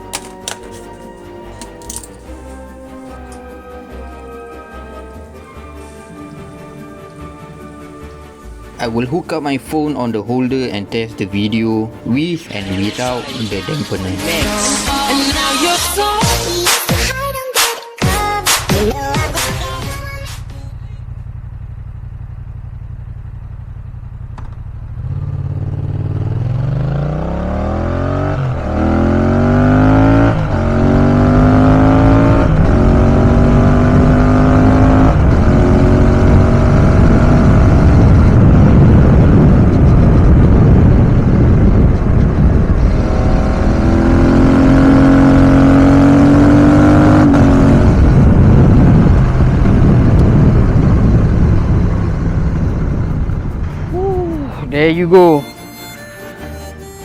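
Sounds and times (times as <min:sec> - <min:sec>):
motorcycle engine revving: 0:18.7 - 0:55.4
wind rushing over microphone: 0:34.9 - 0:54.8.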